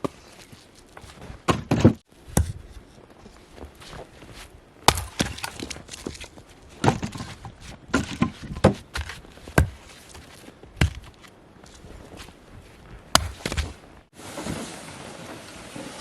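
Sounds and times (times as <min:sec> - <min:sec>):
sharp knocks and thuds: 0:04.8 - 0:14.1.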